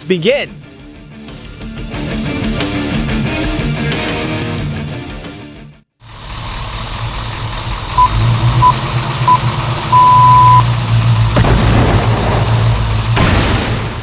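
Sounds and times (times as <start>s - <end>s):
low truck engine rumble: 6.0s - 14.0s
countdown beeps: 8.0s - 10.6s
sudden impact noise: 11.3s - 14.0s.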